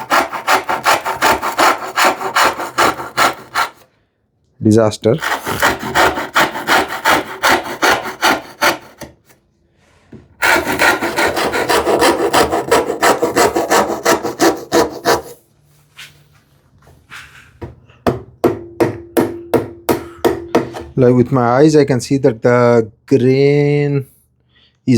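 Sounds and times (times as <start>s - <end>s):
hand saw cutting wood: 0.0s - 3.9s, 5.2s - 9.4s, 10.4s - 15.4s.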